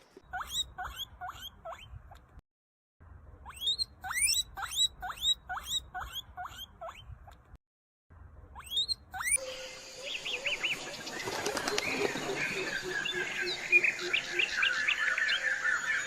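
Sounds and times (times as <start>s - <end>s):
rodent squeaking: 0.2s - 2.2s, 3.4s - 7.4s, 8.5s - 9.4s.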